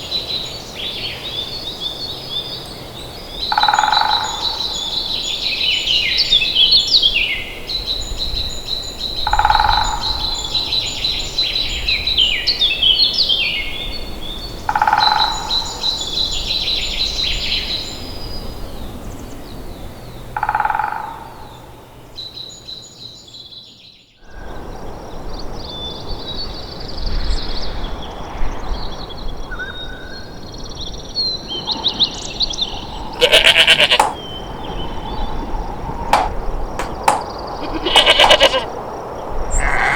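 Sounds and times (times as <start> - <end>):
birds trilling: 32.3 - 35.0, 36.2 - 38.7, 39.4 - 39.9
loud rough animal call: 33.2 - 34.1, 37.6 - 38.7, 39.5 - 39.9.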